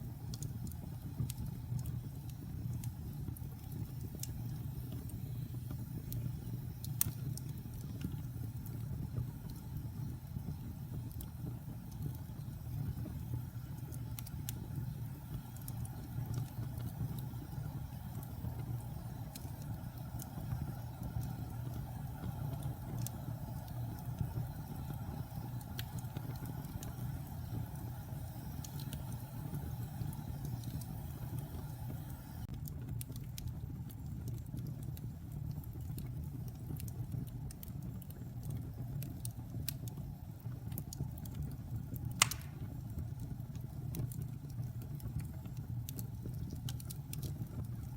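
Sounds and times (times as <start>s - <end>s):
fire crackling and popping: 0.0s - 47.9s
fire rumbling: 0.0s - 47.9s.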